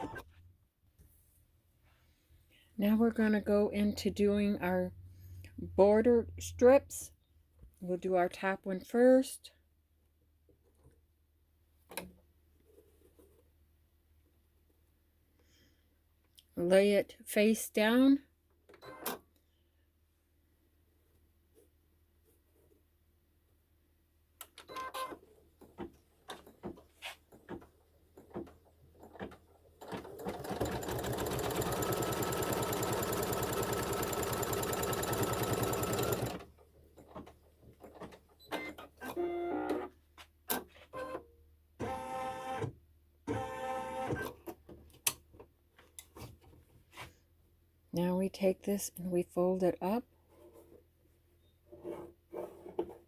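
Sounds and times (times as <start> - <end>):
embroidery machine stitching: 29.1 - 36.5.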